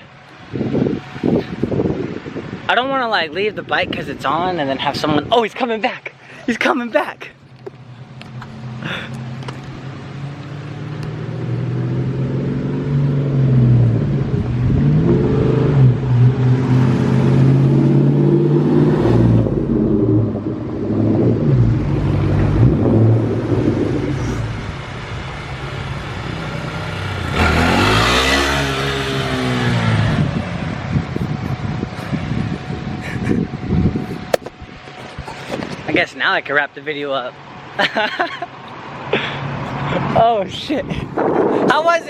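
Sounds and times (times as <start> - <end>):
car engine revving: 7.7 - 32.1.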